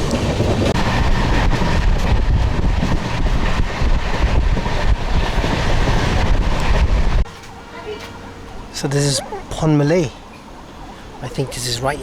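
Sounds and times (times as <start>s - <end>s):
wind buffeting microphone: 0.0s - 7.3s
moving train rumble: 0.0s - 12.0s.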